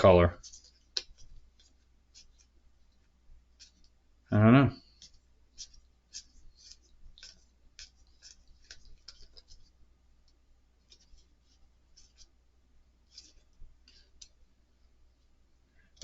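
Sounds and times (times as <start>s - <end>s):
cards clicking and scratching: 0.4s - 2.6s, 3.6s - 4.0s, 4.8s - 9.8s, 10.8s - 12.3s, 13.1s - 14.4s.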